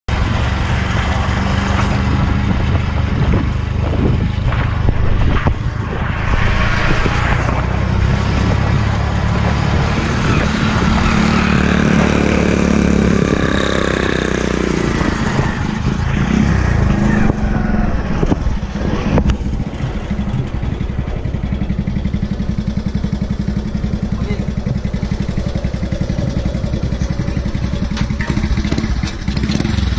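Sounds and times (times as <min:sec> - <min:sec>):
small motorcycle engine running: 0:18.8 - 0:29.9.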